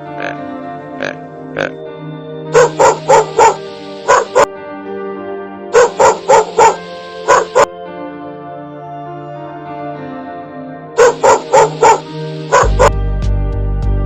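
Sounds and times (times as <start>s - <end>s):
background music: 0.0s - 14.0s
dog barking: 2.6s - 4.5s, 5.7s - 7.7s, 11.0s - 12.9s.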